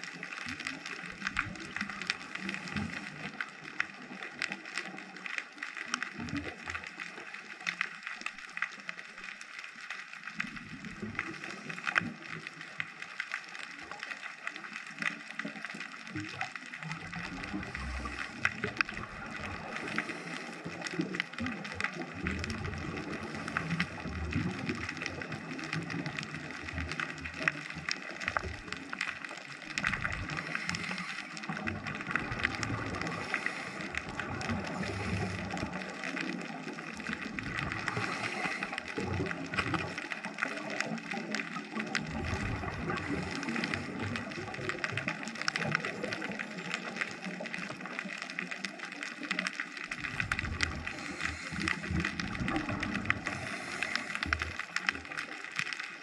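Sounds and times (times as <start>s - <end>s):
low bubbling rumbles: 0.0s - 4.4s, 16.0s - 48.2s, 49.6s - 55.5s
underwater crackle of tiny clicks: 0.0s - 56.0s.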